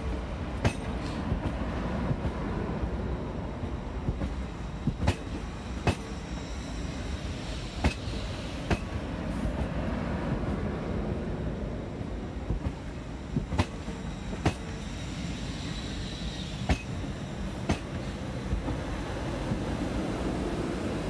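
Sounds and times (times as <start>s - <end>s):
train rail rumble: 0.0s - 21.0s
faint high wheel squeal: 5.4s - 8.6s, 13.2s - 18.3s.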